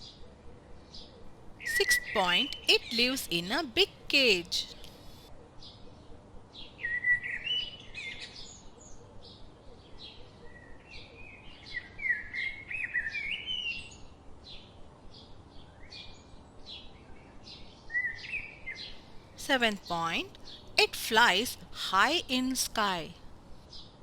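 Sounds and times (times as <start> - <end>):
birds chirping and twittering: 0.9 - 5.2.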